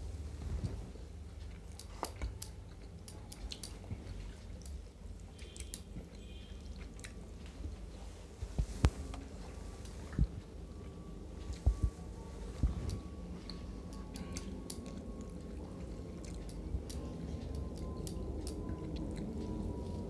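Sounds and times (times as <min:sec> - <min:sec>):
person chewing food: 0:01.3 - 0:07.9, 0:12.6 - 0:20.0.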